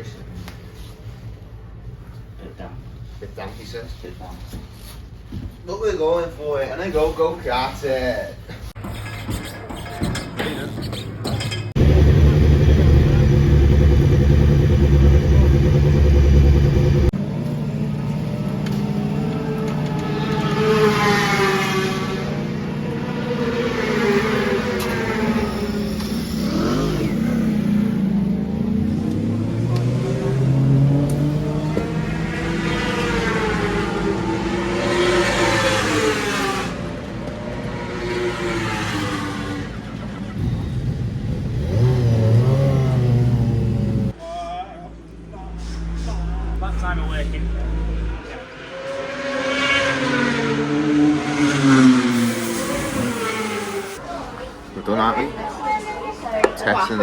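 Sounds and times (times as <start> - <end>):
superbike engine running loudly: 11.8 - 17.1
quieter engine rising in pitch: 11.8 - 44.1, 45.8 - 54.0.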